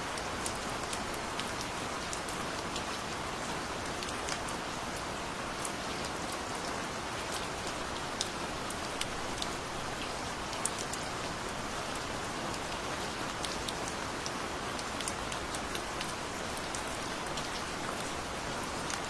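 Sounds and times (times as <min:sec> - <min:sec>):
gentle rain patter: 0:00.0 - 0:19.0.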